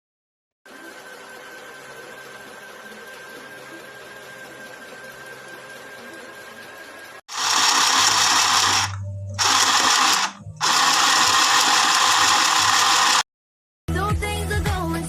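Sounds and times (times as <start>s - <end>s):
sewing machine rattling: 7.3s - 13.2s
music: 8.6s - 11.2s, 13.9s - 15.0s.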